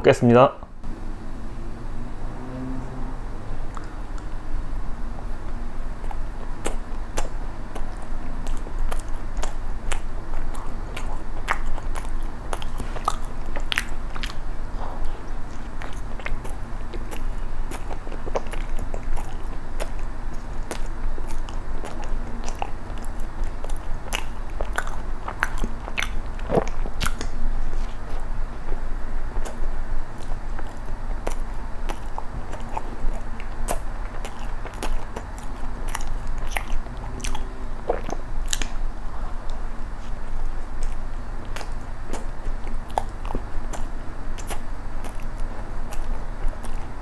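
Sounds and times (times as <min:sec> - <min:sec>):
low steady hum: 0:00.0 - 0:47.0
wet mouth clicks and smacks: 0:16.2 - 0:27.4, 0:30.2 - 0:38.8.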